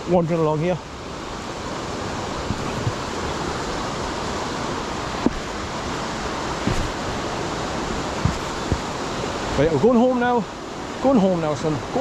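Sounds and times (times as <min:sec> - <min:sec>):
waterfall rushing: 0:00.0 - 0:12.0
light knocks: 0:08.2 - 0:08.9.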